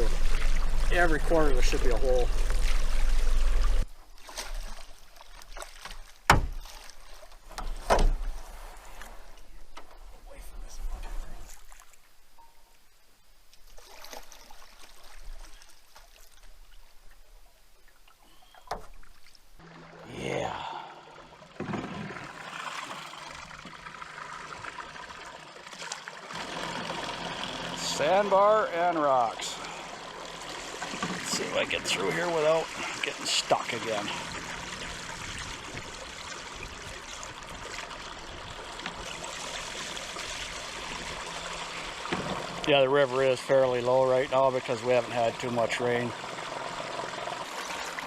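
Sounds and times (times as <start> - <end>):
low steady hum: 0.0 - 4.1
river water rippling and trickling: 0.0 - 48.0
sharp knock on canoe: 6.3 - 6.5.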